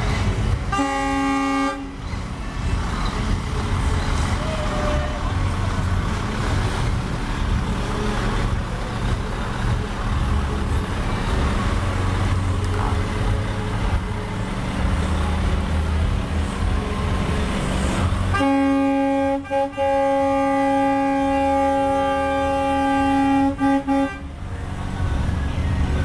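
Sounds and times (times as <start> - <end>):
traffic noise: 0.0 - 26.0
truck engine rumbling: 0.0 - 26.0
loud steady horn chord: 0.7 - 2.0, 18.3 - 24.4.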